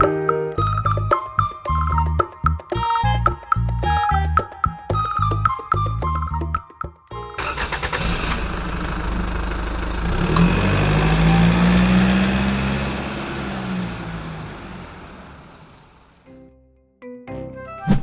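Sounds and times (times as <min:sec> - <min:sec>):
music: 0:00.0 - 0:08.1, 0:16.2 - 0:18.0
engine starting and revving: 0:07.4 - 0:16.2.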